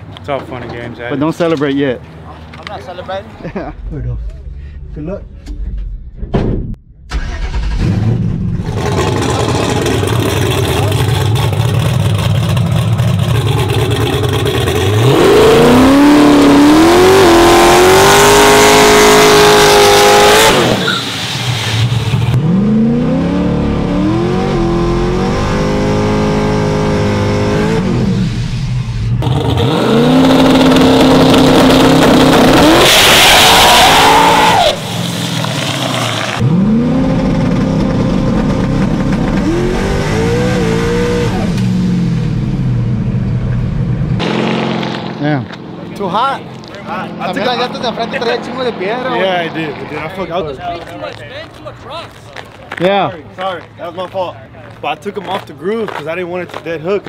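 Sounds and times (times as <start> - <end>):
turbocharged engine revving: 7.1 - 21.0, 21.6 - 34.8, 35.6 - 45.6.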